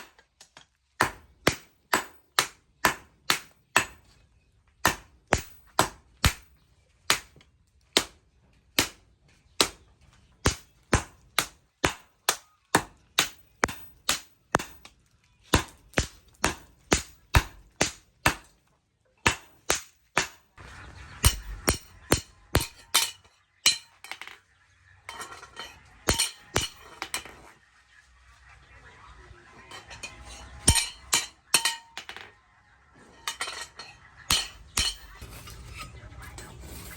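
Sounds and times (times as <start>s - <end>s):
hammer striking steel on anvil: 1.0s - 4.0s, 4.9s - 6.5s, 10.4s - 14.9s, 15.6s - 18.5s, 19.2s - 20.4s, 21.2s - 24.4s, 25.1s - 27.5s, 29.7s - 32.3s, 33.2s - 36.0s.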